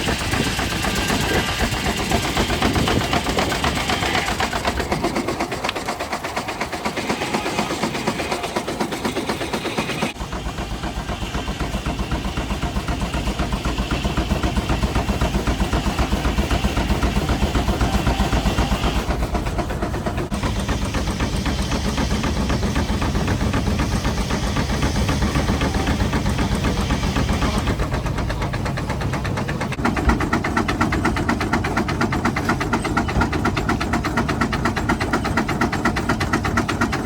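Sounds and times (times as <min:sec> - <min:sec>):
steam engine exhaust chuffing: 0:00.0 - 0:37.0.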